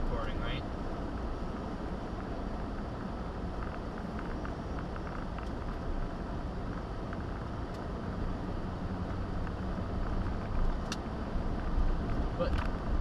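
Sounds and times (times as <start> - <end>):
road and engine rumble: 0.0 - 13.0.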